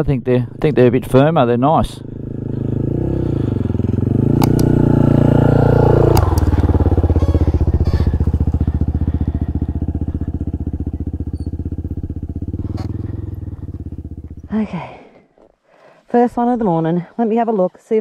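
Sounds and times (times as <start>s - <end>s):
motorcycle engine revving: 0.5s - 14.8s.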